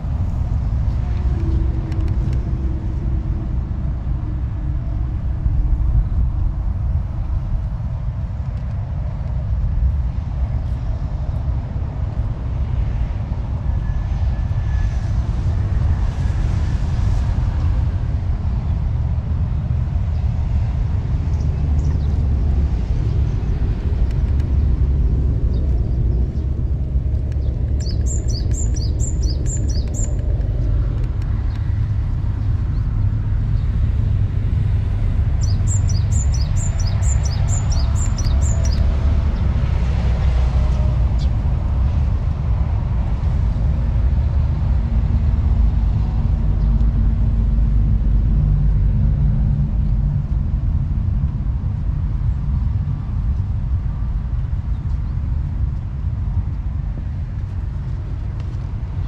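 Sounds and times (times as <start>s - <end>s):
low rumble: 0.0s - 59.0s
bird high chirps: 27.4s - 30.2s, 35.4s - 38.8s.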